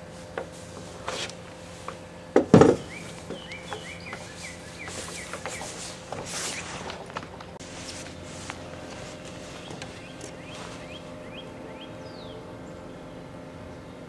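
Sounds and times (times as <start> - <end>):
bird chirping: 1.9 - 7.1, 8.1 - 13.2.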